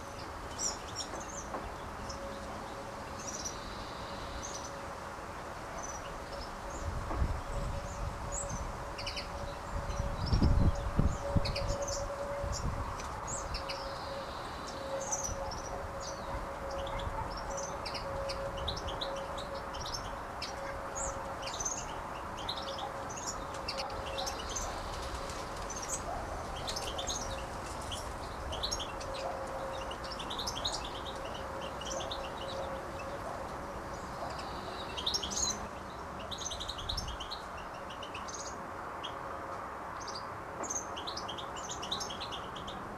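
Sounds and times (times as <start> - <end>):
small birds chirping and twittering: 0.0 - 42.9.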